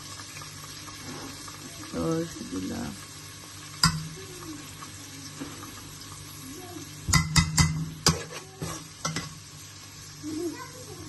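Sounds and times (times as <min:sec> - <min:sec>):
onions sizzling in oil: 0:00.0 - 0:11.0
spoon clinking on pan: 0:03.8 - 0:04.1, 0:07.1 - 0:09.3.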